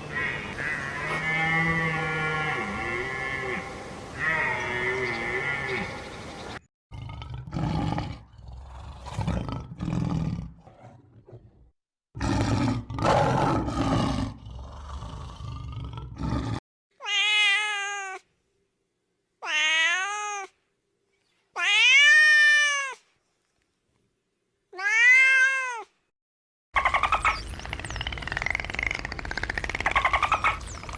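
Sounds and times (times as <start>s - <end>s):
rough growling roars: 6.9s - 16.6s
cat meowing: 17.0s - 18.2s, 19.4s - 20.5s, 21.6s - 23.0s, 24.8s - 25.9s.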